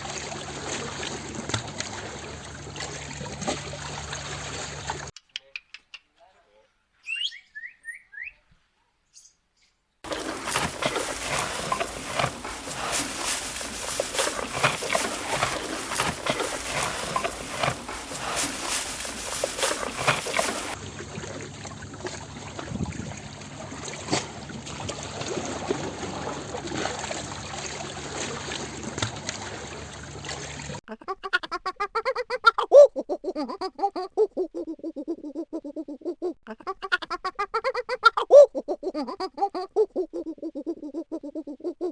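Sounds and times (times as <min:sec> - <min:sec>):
water splashing and trickling: 0:00.0 - 0:05.1, 0:10.0 - 0:30.8.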